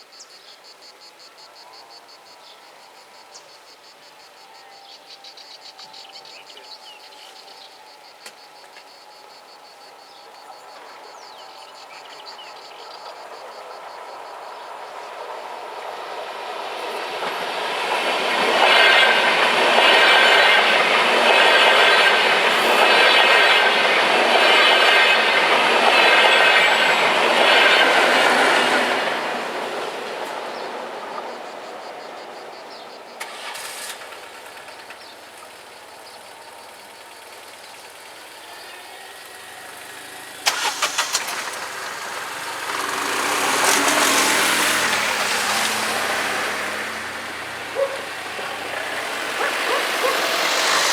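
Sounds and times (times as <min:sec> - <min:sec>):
train passing: 0:02.0 - 0:50.9
wheels clacking over rail joints: 0:11.8 - 0:50.9.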